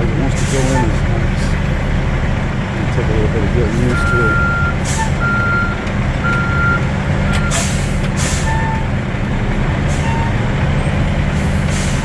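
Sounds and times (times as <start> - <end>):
truck engine idling: 0.0 - 12.0
backup alarm beep: 3.9 - 7.6.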